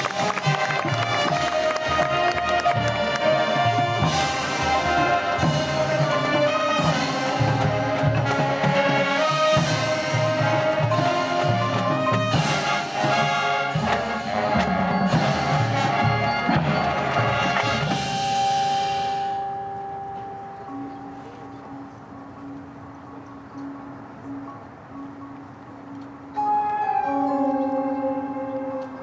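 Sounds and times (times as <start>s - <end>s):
marching band playing: 0.0s - 19.8s.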